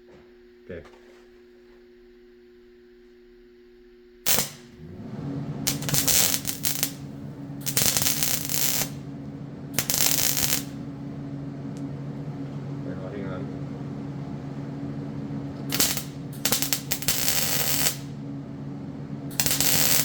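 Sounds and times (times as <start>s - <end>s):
welding arc crackle: 4.2s - 18.2s, 19.3s - 20.0s
welder humming: 4.2s - 20.0s.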